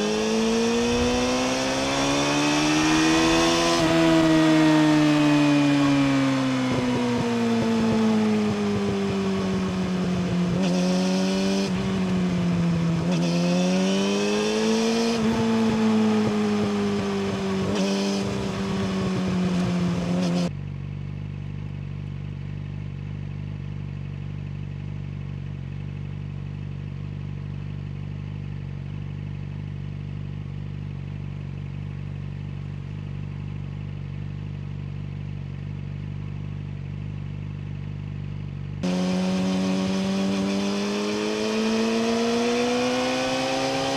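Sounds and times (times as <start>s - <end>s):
motorcycle engine revving: 0.0s - 20.5s, 38.8s - 43.9s.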